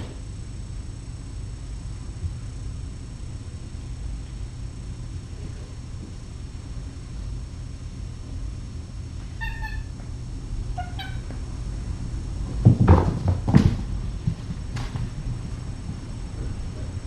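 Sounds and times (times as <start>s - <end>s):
cat meowing: 9.4s - 10.0s, 10.7s - 11.3s.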